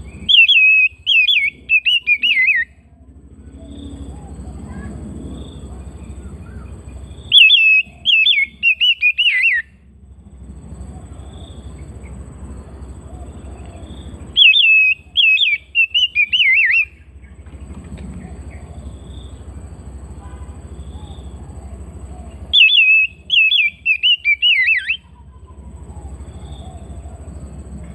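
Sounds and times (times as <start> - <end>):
bird singing whistled notes: 0.0 - 2.8, 3.5 - 9.8, 13.0 - 17.4, 20.8 - 27.4
low steady hum: 0.0 - 27.9.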